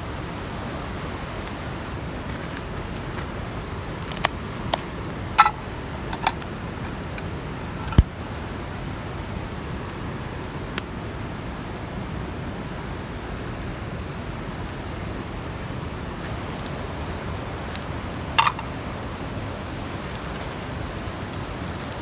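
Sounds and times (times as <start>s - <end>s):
steady outdoor hiss: 0.0s - 22.0s
cooking gear clinking: 5.3s - 6.4s, 7.2s - 8.1s, 18.2s - 18.8s.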